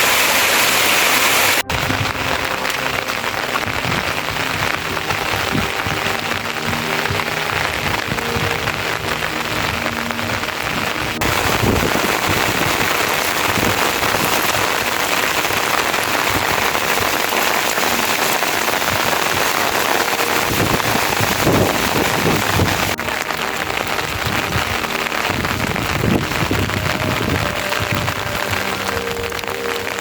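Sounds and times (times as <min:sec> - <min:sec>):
heavy rain falling: 0:00.0 - 0:30.0.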